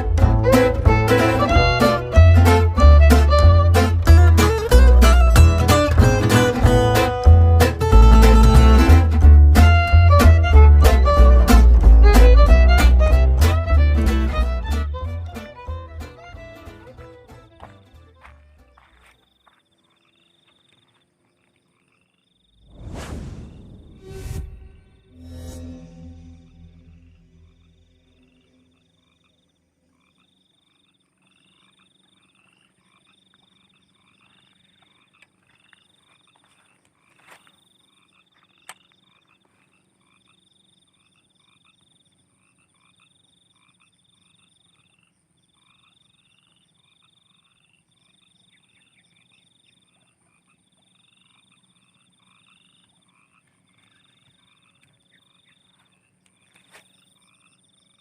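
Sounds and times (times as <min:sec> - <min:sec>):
frogs croaking: 0:17.6 - 0:22.7, 0:27.3 - 0:58.0
steady high buzz: 0:23.4 - 0:29.4.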